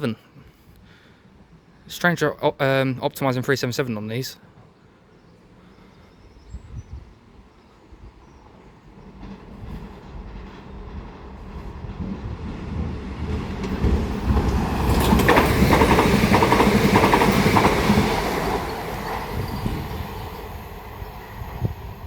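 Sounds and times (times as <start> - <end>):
electric train rumbling: 5.3 - 22.0
train wheels clattering: 8.4 - 21.7.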